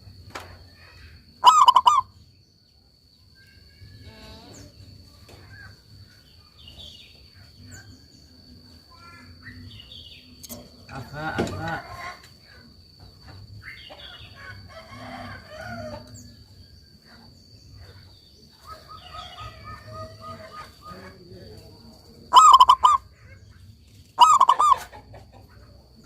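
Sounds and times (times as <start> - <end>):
high insect drone: 0.0 - 26.0
dove staccato cooing: 1.4 - 2.1, 22.3 - 23.2, 24.2 - 26.0.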